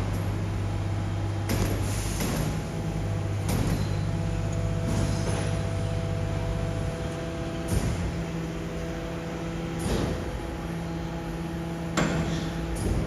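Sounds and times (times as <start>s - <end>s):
garbage truck engine running: 0.0s - 13.0s
short hissing clunk: 1.6s - 2.6s.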